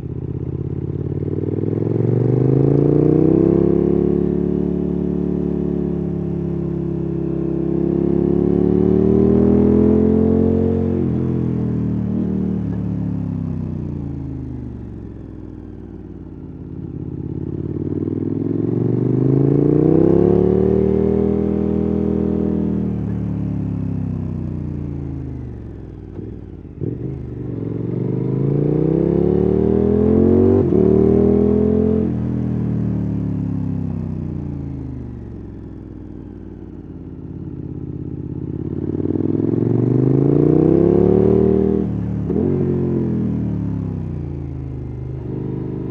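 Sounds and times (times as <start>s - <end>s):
motorcycle engine revving: 0.8s - 5.4s, 7.5s - 13.4s, 17.4s - 24.0s, 24.9s - 35.4s, 38.4s - 45.9s.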